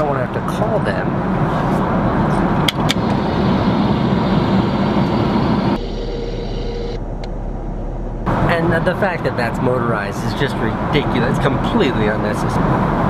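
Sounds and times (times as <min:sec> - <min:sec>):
airliner cabin drone: 0:01.5 - 0:09.0
motorized door whine: 0:04.6 - 0:07.0.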